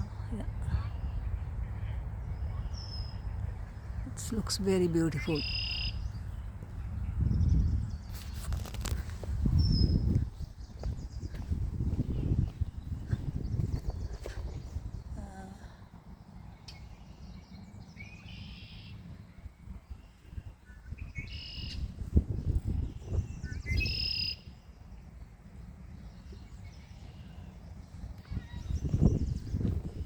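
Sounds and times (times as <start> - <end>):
wind rumble: 0.0 - 30.0
songbird singing buzzy trill: 2.2 - 8.8, 16.1 - 30.0.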